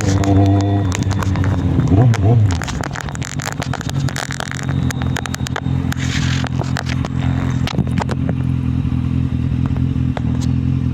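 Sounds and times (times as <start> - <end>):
sharp clicks: 0.0 - 8.5
motorcycle engine running: 0.0 - 10.9.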